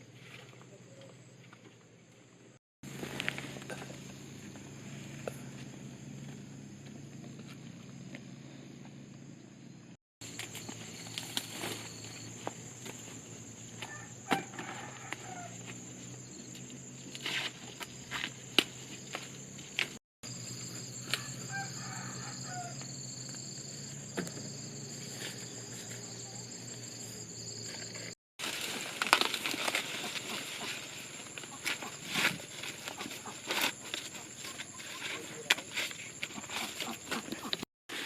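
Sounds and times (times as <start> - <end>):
high insect drone: 10.2 - 37.2
chickens calling: 29.6 - 35.3, 36.2 - 37.6.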